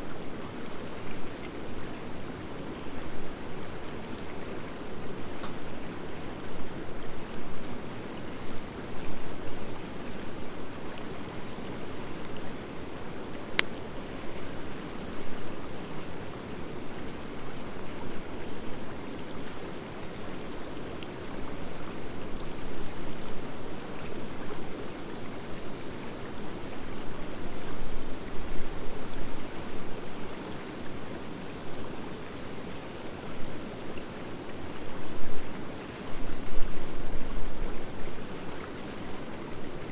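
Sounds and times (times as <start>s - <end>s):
campfire burning and crackling: 0.1s - 17.6s.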